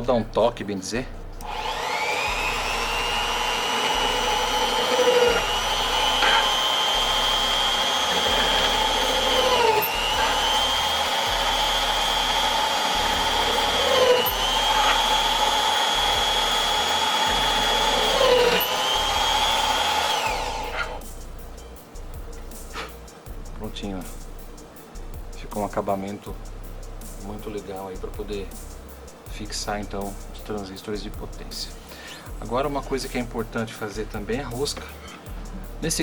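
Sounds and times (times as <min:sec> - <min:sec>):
electric drill whining: 0:01.4 - 0:21.0.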